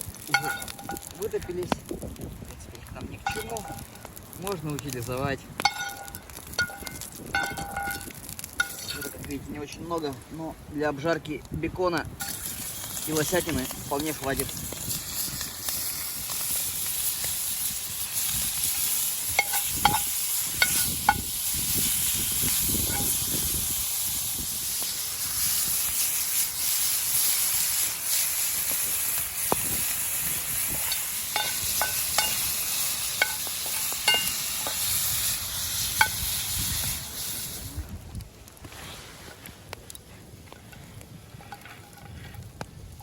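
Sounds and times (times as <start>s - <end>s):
meat sizzling in a frying pan: 0.0s - 2.2s, 12.2s - 37.9s.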